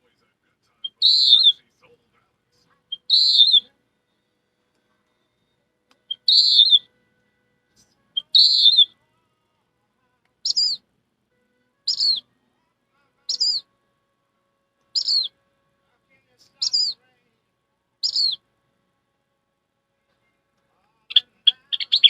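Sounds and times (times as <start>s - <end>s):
person whistling bird calls: 0.9s - 1.6s, 2.9s - 3.7s, 6.1s - 6.9s, 8.2s - 8.9s, 10.5s - 10.8s, 11.9s - 12.3s, 13.3s - 13.6s, 15.0s - 15.3s, 16.6s - 17.0s, 18.0s - 18.4s, 21.5s - 22.0s.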